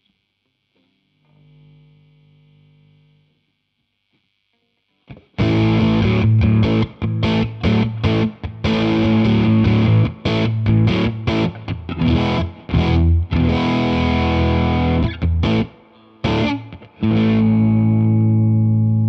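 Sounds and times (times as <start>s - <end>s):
distorted electric guitar chords: 5.0s - 19.0s.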